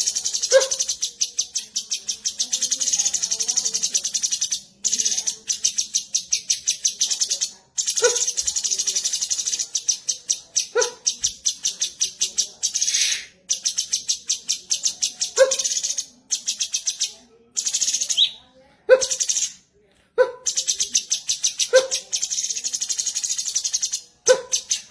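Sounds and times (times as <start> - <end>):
bird singing rapid high notes: 7.9 - 18.4.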